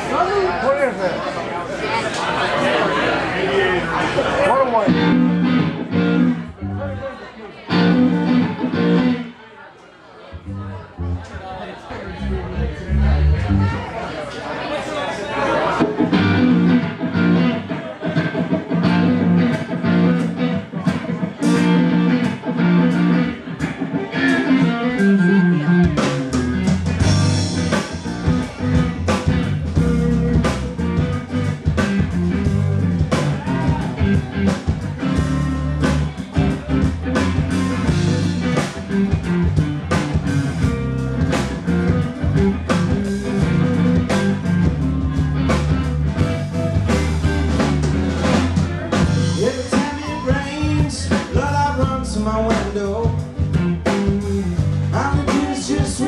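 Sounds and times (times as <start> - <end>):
bass guitar: 4.8 - 7.1, 7.7 - 9.4, 10.3 - 14.3, 15.8 - 56.0
electric guitar: 4.9 - 7.0, 7.7 - 9.3, 15.8 - 56.0
drum kit: 15.8 - 56.0.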